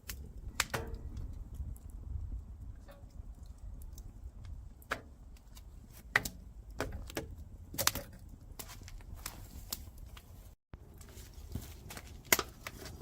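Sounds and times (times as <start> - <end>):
sharp clicks and small knocks: 0.0 - 2.0, 2.7 - 9.1.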